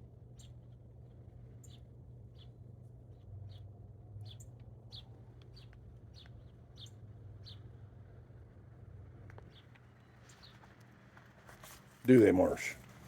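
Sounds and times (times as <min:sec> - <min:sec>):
small bird chirping: 0:01.6 - 0:02.6, 0:03.2 - 0:07.7.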